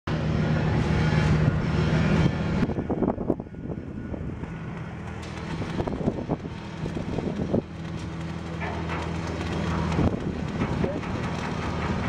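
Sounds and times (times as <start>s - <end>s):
machine hum: 0.1s - 12.0s
knocks and clatter: 4.7s - 12.0s.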